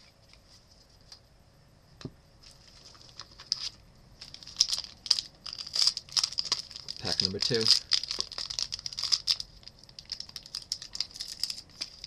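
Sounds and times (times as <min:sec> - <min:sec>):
plastic wrapper crinkling: 0:02.4 - 0:12.0.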